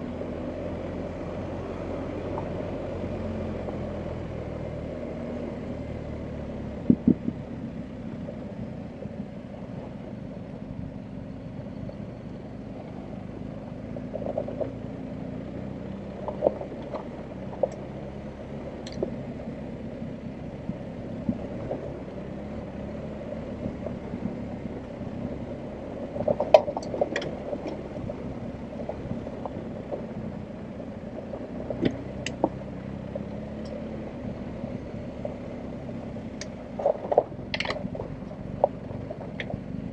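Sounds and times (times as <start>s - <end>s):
motorcycle engine running: 0.0s - 39.9s
knocks and clatter from bike: 14.0s - 15.0s, 16.2s - 17.9s, 26.1s - 28.2s, 36.4s - 39.8s.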